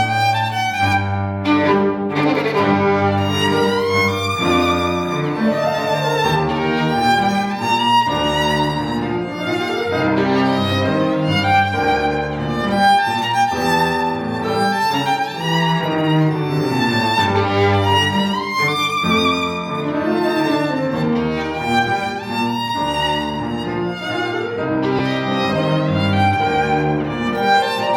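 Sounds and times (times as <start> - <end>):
string and bass accompaniment: 0.0 - 27.9
violin melody with vibrato: 0.0 - 27.9.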